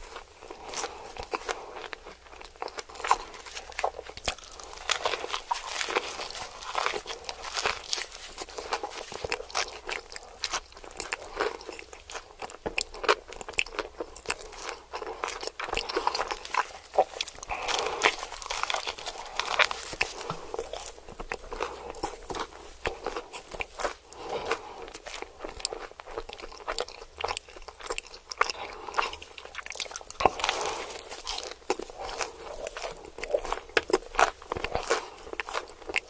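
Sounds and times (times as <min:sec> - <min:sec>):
person chewing crunchy food: 0:00.0 - 0:36.0.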